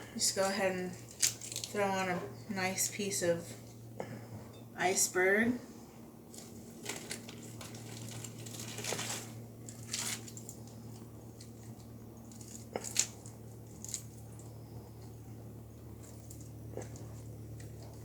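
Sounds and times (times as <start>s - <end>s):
steady low hum: 0.0s - 18.0s
lettuce rustling and crinkling: 0.4s - 2.1s, 6.3s - 15.1s.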